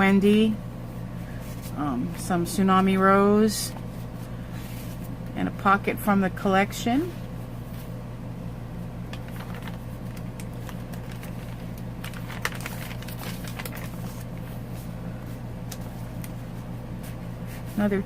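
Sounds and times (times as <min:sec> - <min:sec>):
steady low hum: 0:00.0 - 0:18.0
paper pages rustling: 0:09.2 - 0:14.6.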